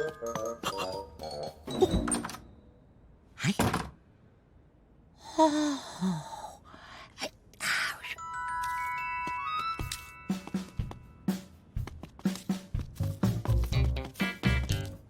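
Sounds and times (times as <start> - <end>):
cartoon gasps and grunts: 5.2 - 8.2.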